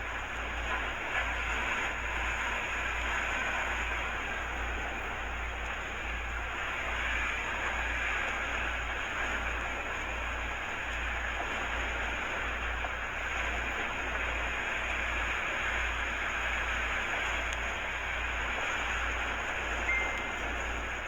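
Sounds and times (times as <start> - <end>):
brief high tone: 19.8 - 21.0.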